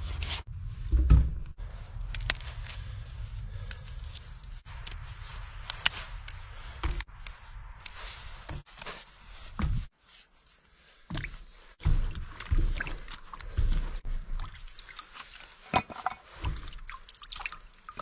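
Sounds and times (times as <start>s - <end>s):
low thuds: 0.5s - 1.8s.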